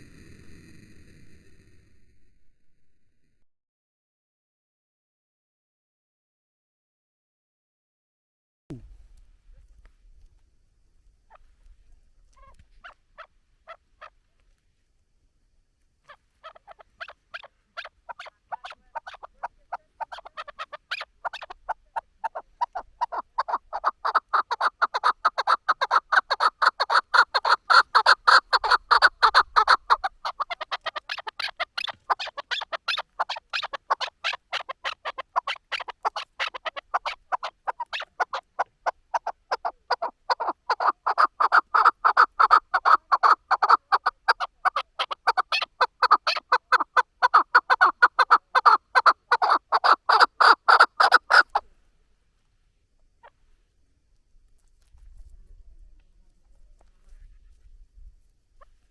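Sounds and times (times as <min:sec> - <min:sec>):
partridge chuck calls: 0:12.3 - 0:14.4, 0:16.0 - 0:51.7.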